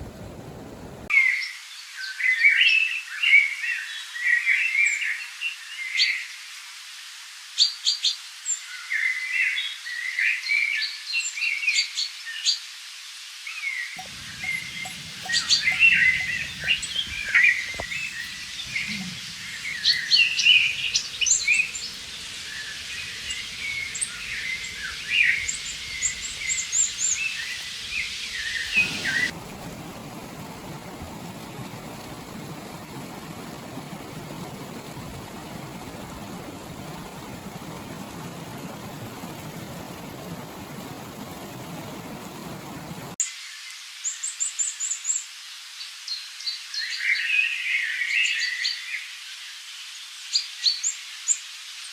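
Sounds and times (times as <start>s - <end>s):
songbirds chirping and singing: 14.0s - 29.3s
flowing river water: 14.0s - 43.2s.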